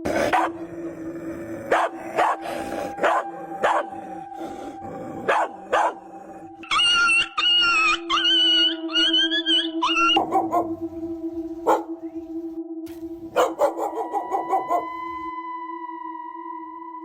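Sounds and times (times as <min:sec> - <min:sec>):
dog barking: 0:00.2 - 0:00.6, 0:01.7 - 0:04.0, 0:05.2 - 0:06.1, 0:10.1 - 0:10.8, 0:11.6 - 0:12.0, 0:13.3 - 0:15.0.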